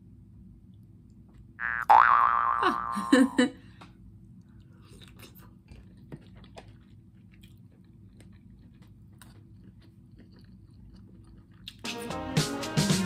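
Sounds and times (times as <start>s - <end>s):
person chewing food: 4.3s - 11.9s.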